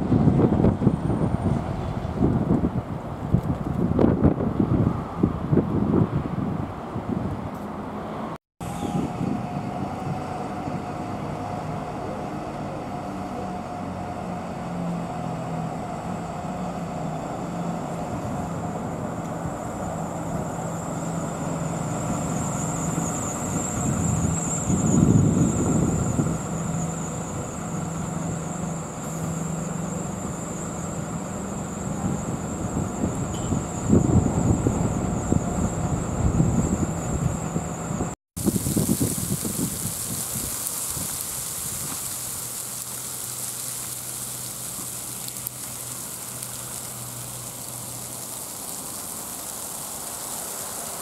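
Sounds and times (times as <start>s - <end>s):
vehicle low hum: 0.0s - 51.0s
vehicle rumble: 0.0s - 51.0s
high-pitched whine: 8.6s - 10.9s, 19.4s - 40.0s.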